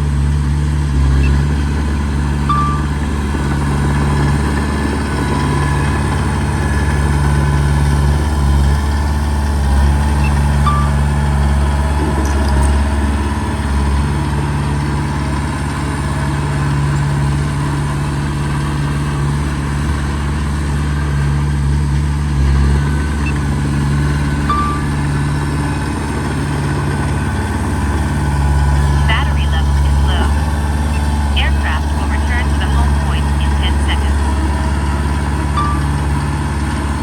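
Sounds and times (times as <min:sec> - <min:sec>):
heavy diesel engine humming: 0:00.0 - 0:37.0
brief high tones: 0:02.5 - 0:03.1, 0:29.0 - 0:36.3.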